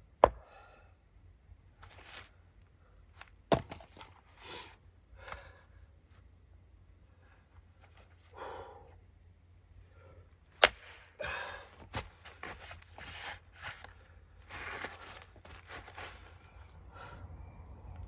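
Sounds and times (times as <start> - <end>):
axe striking log: 0.2 - 0.5, 3.5 - 4.0, 10.6 - 11.2.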